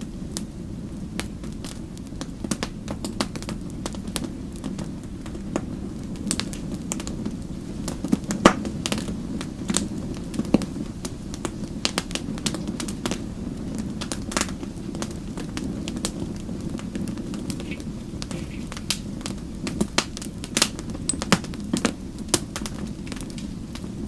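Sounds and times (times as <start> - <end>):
wood fire crackling: 0.0 - 24.0
sharp pops and snaps: 17.0 - 23.9.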